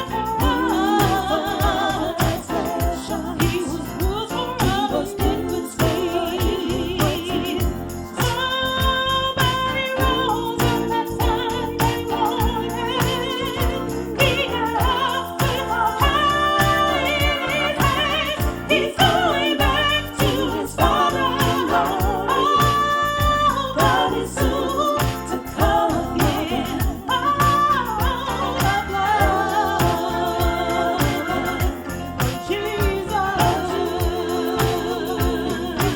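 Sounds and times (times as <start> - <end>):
person singing church song: 0.0 - 35.9
steady beat: 0.0 - 35.9.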